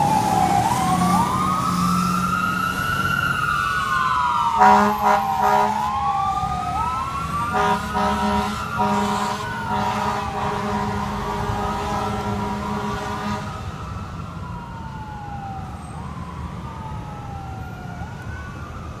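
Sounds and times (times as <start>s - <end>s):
siren wailing: 0.0s - 19.0s
fire engine air horn: 4.4s - 6.0s, 7.2s - 13.8s.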